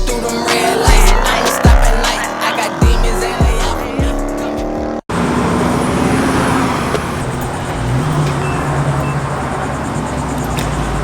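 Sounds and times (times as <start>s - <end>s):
car engine running: 0.0s - 11.0s
traffic noise: 0.2s - 11.0s.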